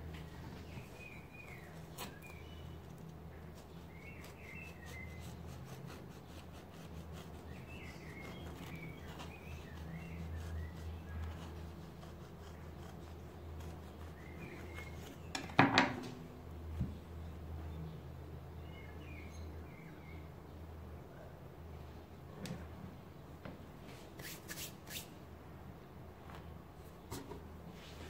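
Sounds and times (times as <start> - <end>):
knife sawing through cake: 3.6 - 15.1.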